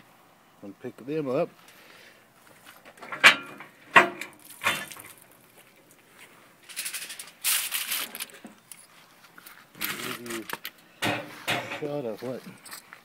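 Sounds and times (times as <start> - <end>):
scraping rustle: 4.3 - 12.9.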